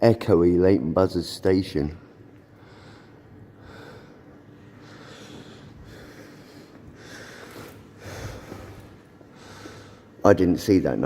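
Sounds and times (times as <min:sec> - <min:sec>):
man breathing heavily: 0:02.5 - 0:10.2.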